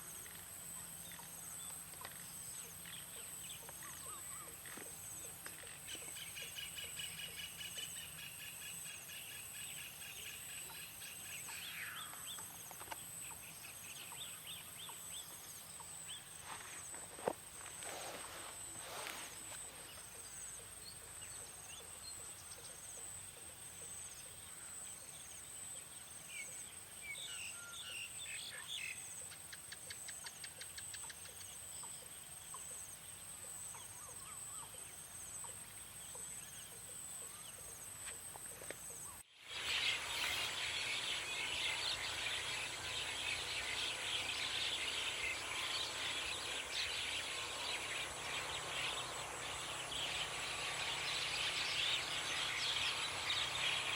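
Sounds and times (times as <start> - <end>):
chorus of birds and insects: 0.0 - 53.9
pulsing insect call: 26.6 - 53.9
high insect drone: 37.8 - 53.9
bird chirps: 38.8 - 53.9
rapid bird trill: 39.1 - 53.9.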